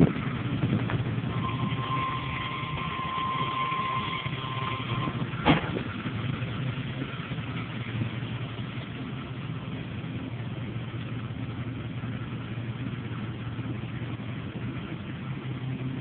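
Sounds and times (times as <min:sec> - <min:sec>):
pickup engine idling: 0:00.0 - 0:16.0
steady high tone: 0:01.2 - 0:05.4.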